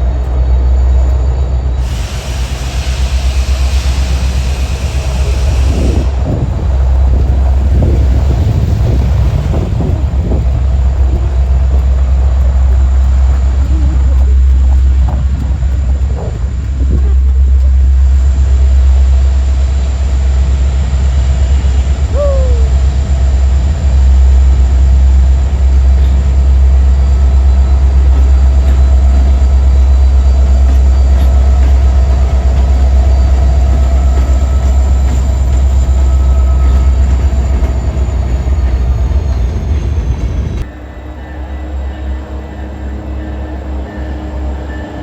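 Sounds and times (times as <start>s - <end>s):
train passing rumble: 0.0s - 45.0s
train brake squeal: 1.8s - 6.4s, 25.9s - 45.0s.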